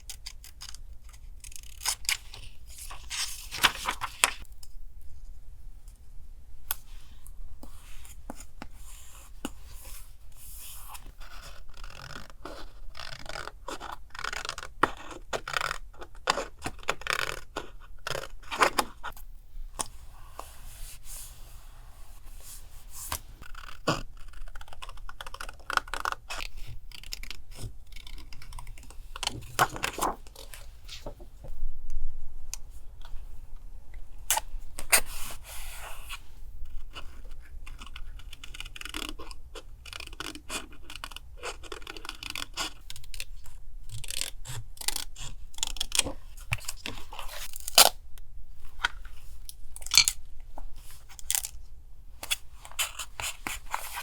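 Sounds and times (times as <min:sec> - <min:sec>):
paper rustling and crinkling: 0:02.0 - 0:04.4, 0:27.6 - 0:31.5, 0:52.2 - 0:54.0.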